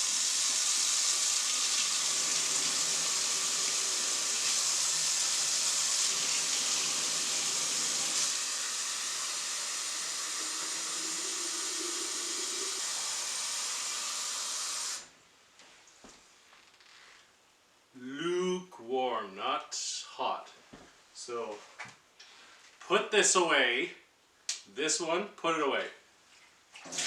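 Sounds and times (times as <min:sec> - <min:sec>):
tap water running into a jug: 0:00.0 - 0:15.0, 0:26.8 - 0:27.0.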